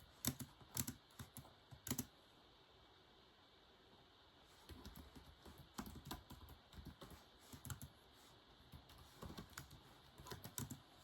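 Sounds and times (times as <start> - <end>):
keyboard typing: 0.0 - 2.1, 4.7 - 8.0, 8.7 - 11.0.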